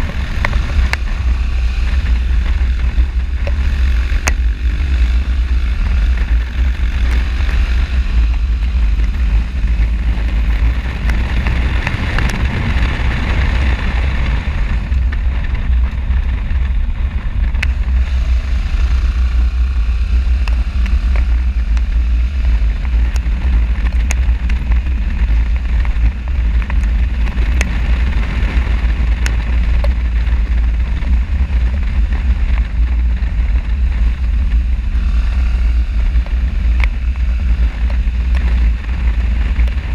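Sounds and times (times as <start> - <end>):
motorcycle riding noise: 0.0 - 39.9
wind rushing over microphone: 0.0 - 39.9
faint ticks: 2.0 - 12.4.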